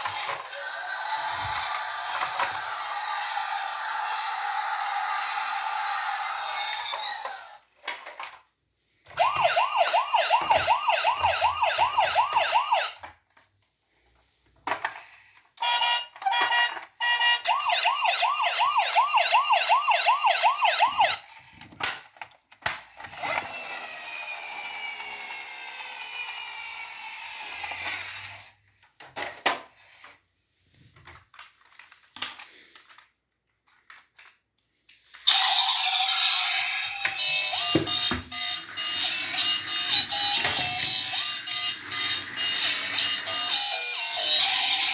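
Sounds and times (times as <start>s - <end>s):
toy electronic siren wailing: 0.0s - 7.6s, 9.2s - 13.1s, 15.6s - 21.3s, 23.2s - 28.2s, 35.3s - 44.9s
clicks of toys being handled: 6.7s - 9.2s, 14.5s - 17.0s, 21.3s - 23.6s, 27.5s - 30.2s, 30.8s - 35.5s.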